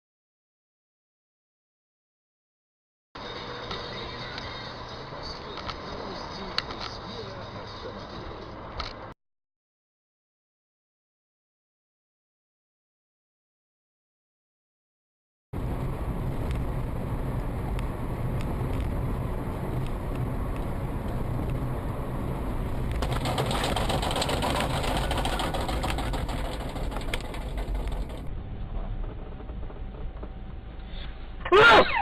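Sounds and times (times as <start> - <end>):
car engine and road noise: 3.2 - 9.2, 15.6 - 32.0
rushing noise: 15.6 - 31.5.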